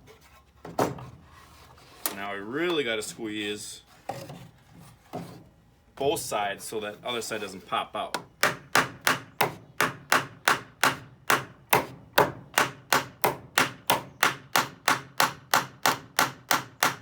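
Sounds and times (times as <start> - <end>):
hammer driving nail into wood: 8.2 - 17.0.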